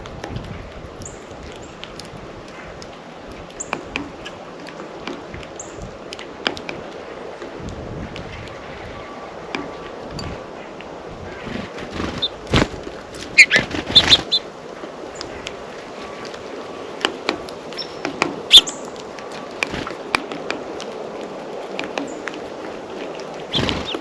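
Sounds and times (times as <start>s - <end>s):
flutter of wings: 11.4s - 14.4s, 23.4s - 24.0s
birds tapping at a feeder: 12.1s - 14.5s, 17.0s - 20.7s.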